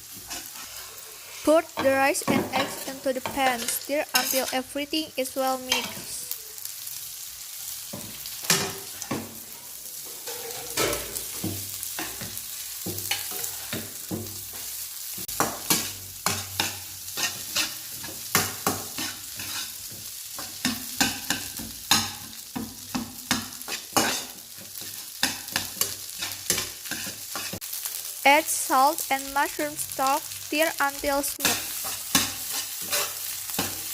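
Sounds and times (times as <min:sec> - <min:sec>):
spatula scraping a pan: 0:00.0 - 0:04.7, 0:08.0 - 0:27.9, 0:31.4 - 0:33.9
rice sizzling in oil: 0:00.0 - 0:33.9.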